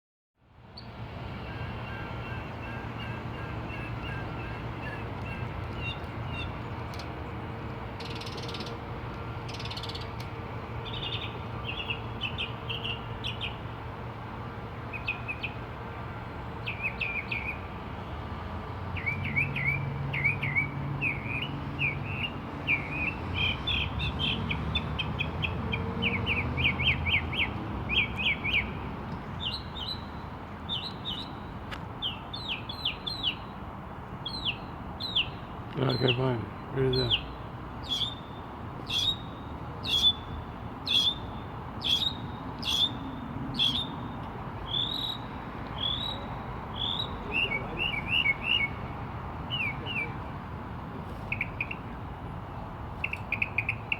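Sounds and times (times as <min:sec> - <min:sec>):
bird chirping and trilling: 0:34.2 - 0:44.1, 0:44.7 - 0:48.8.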